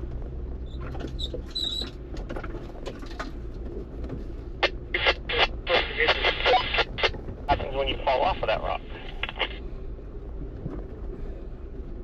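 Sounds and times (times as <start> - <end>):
off-road vehicle engine rumbling: 0.0 - 12.0
short high squeak: 1.2 - 1.9.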